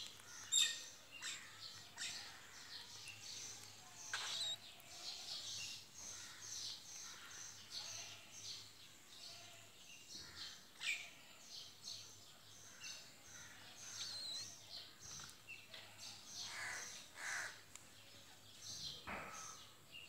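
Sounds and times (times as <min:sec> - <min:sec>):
faint outdoor noise: 0:00.0 - 0:20.0
bird chirps and twitters: 0:00.5 - 0:04.8, 0:13.8 - 0:15.4.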